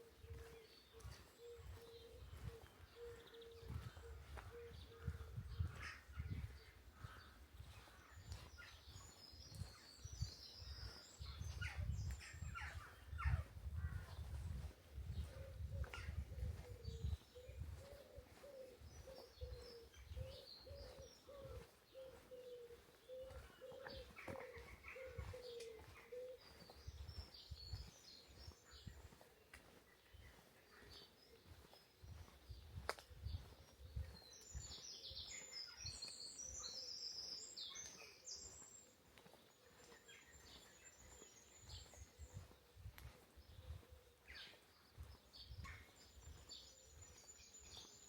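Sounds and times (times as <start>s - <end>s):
small birds chirping: 0.0s - 48.0s
soft footsteps on a path: 0.0s - 48.0s
dove cooing: 16.4s - 26.6s.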